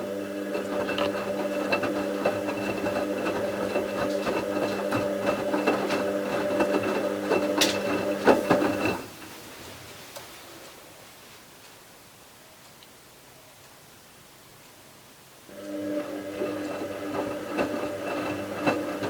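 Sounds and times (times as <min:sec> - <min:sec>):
washing machine humming and rattling: 0:00.0 - 0:10.8, 0:15.5 - 0:19.0.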